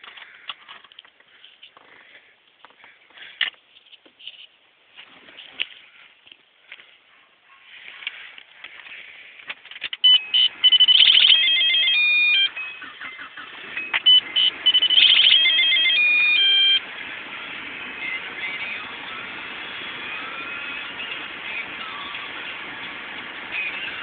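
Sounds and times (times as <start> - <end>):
electronic alert melody beeps: 10.0 - 13.0, 13.7 - 16.9.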